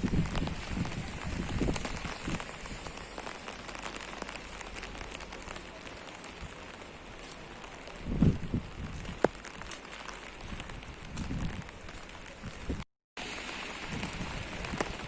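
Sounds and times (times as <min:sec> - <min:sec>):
rain pattering on surfaces: 0:00.0 - 0:15.0.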